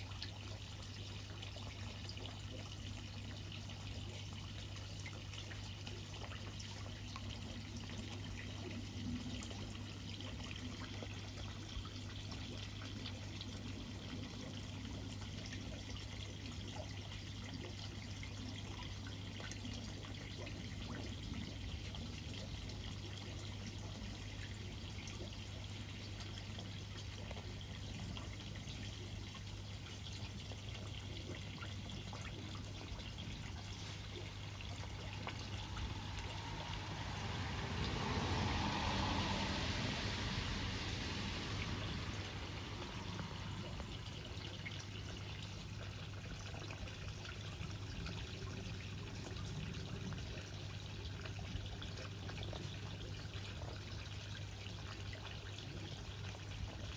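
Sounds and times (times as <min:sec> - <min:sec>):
water running and dripping: 0:00.0 - 0:56.9
low hum: 0:30.5 - 0:45.8.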